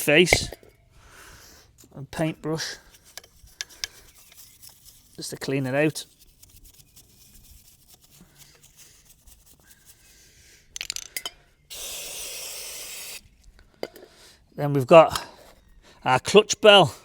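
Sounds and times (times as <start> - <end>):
paintbrush scrubbing: 2.8 - 10.7
aerosol spray hiss: 11.7 - 13.2.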